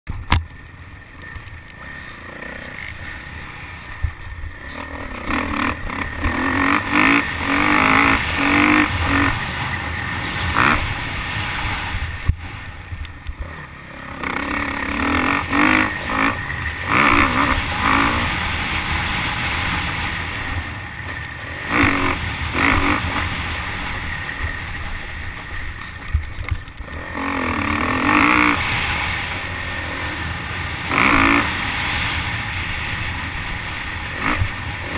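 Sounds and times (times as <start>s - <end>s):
motocross bike engine revving: 1.3s - 34.9s.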